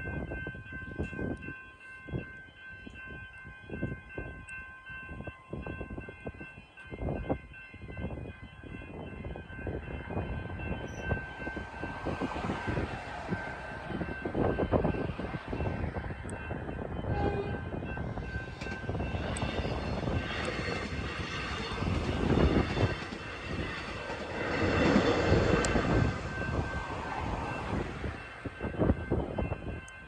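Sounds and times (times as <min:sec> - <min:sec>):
electric train passing: 0:00.0 - 0:30.0
steady high tone: 0:00.0 - 0:30.0.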